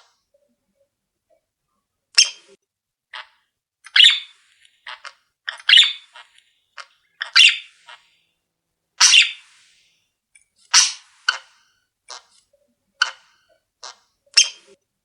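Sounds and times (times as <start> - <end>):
caged birds scratchy calls: 3.9 - 8.2, 9.0 - 9.8, 10.6 - 14.8.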